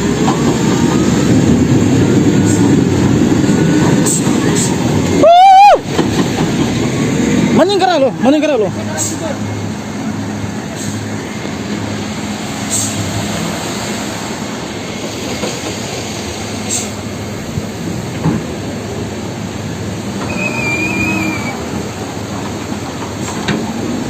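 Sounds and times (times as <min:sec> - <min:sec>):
heavy truck rumbling: 0:00.0 - 0:24.0
high wavering squeal: 0:20.2 - 0:21.7.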